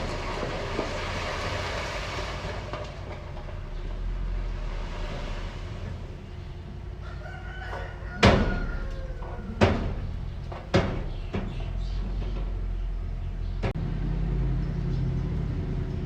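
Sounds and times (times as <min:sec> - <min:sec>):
heavy machinery engine rumble: 0:00.0 - 0:16.0
rooster crowing: 0:07.0 - 0:10.1.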